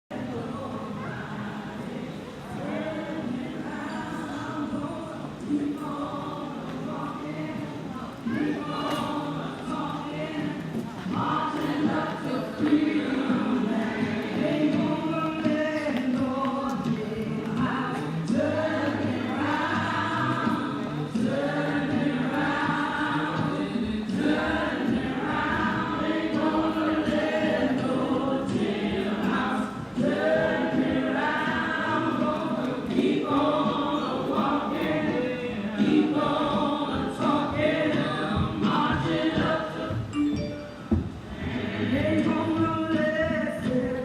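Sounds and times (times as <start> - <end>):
choir singing held notes: 0.1 - 44.0.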